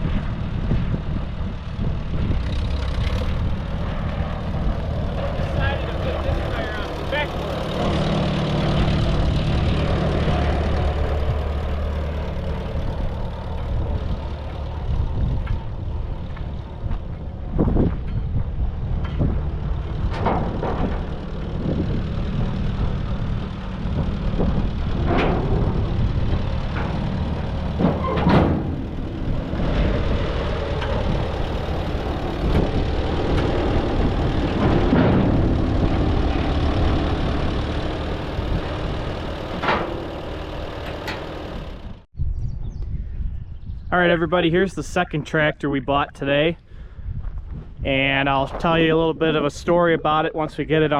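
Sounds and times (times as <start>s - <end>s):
tractor engine idling: 0.0s - 42.1s
metallic clanks and knocks: 15.4s - 42.0s.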